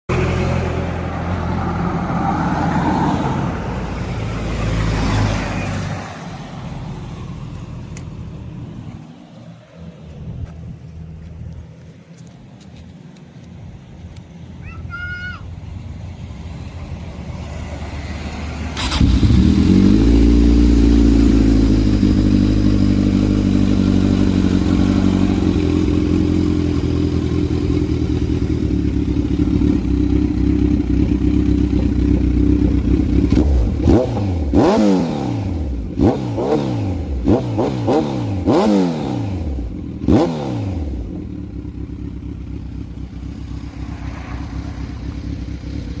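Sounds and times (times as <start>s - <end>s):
motorcycle engine idling: 18.8s - 33.9s, 40.7s - 46.0s.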